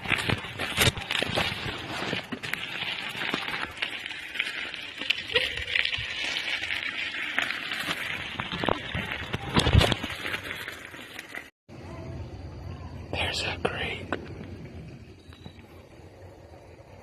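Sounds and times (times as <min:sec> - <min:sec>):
bicycle tyres rolling on dirt: 0:00.0 - 0:11.5, 0:14.0 - 0:17.0
gravel and twigs clicking: 0:00.0 - 0:11.5.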